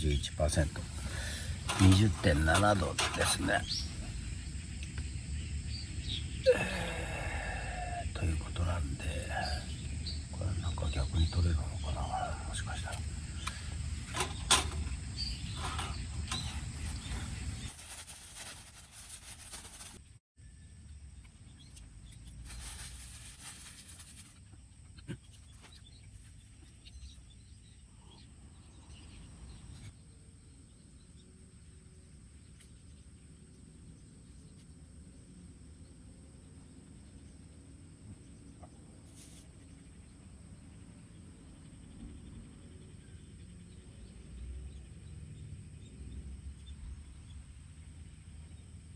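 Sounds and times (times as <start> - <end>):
faint bird chirps: 0.0 - 19.8, 20.4 - 34.8.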